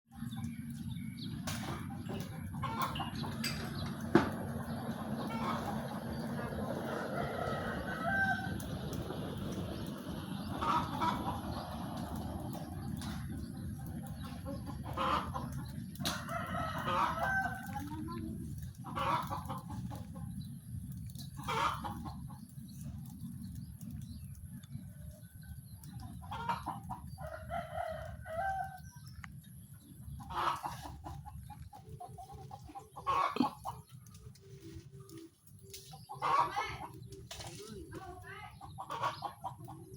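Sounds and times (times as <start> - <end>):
chickens clucking: 0.1 - 39.9
rooster crowing: 6.8 - 8.6.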